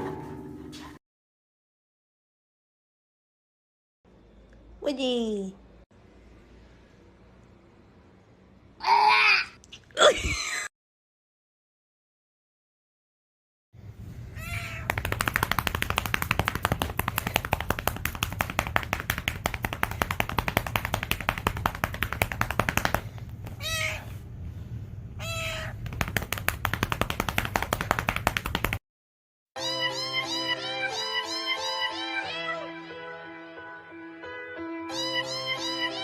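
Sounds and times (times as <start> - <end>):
cat meowing: 14.4 - 14.9, 23.6 - 24.2, 25.2 - 25.8.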